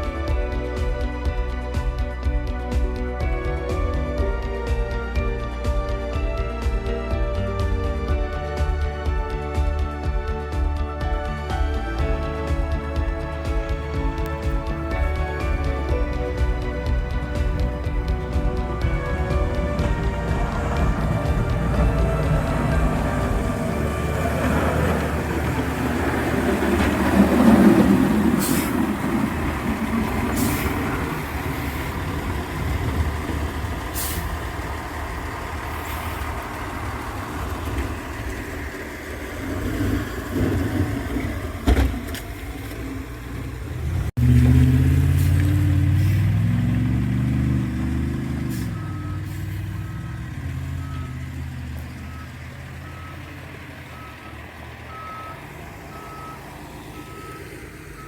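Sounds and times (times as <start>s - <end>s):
heavy truck engine: 0.0s - 58.0s
reversing alarm beeping: 12.1s - 40.1s, 47.9s - 58.0s
short air hisses: 28.4s - 29.0s, 30.4s - 30.8s, 33.9s - 34.4s.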